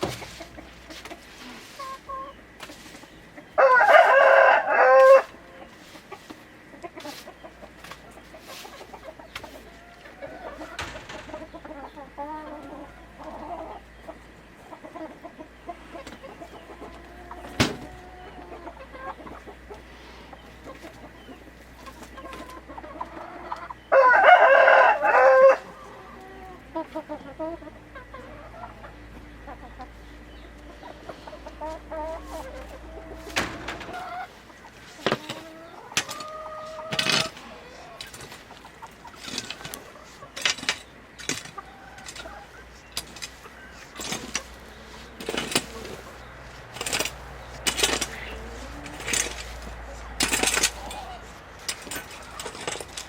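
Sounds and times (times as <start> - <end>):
hens clucking softly: 0.0 - 53.0
rooster crowing: 3.6 - 5.6, 23.9 - 26.6.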